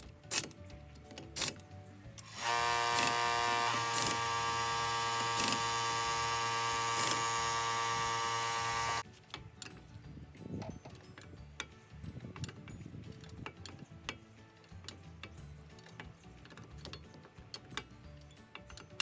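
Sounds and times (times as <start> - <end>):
air impact wrench whirring: 2.2 - 9.0.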